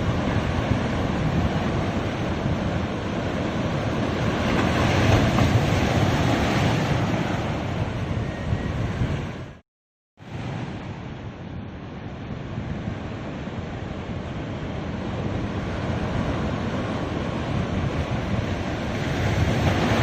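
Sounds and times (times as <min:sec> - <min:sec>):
ocean surf washing onto beach: 0:00.0 - 0:09.4, 0:10.2 - 0:20.0
wind buffeting microphone: 0:00.0 - 0:09.6, 0:10.3 - 0:20.0.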